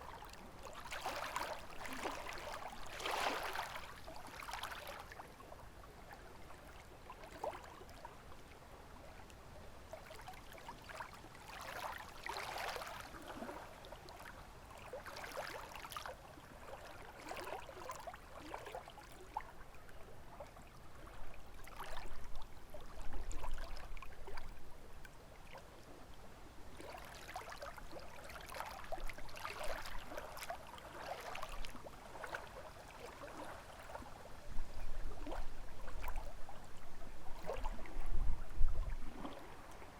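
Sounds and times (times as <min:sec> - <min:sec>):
lake waves lapping: 0:00.1 - 0:05.2, 0:10.0 - 0:19.5, 0:26.7 - 0:38.1, 0:38.8 - 0:39.9.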